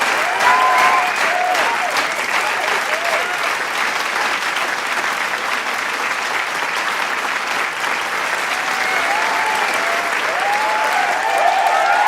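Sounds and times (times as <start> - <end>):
cheering voices: 0.0 - 4.1, 7.6 - 12.0
crowd clapping: 0.0 - 12.0.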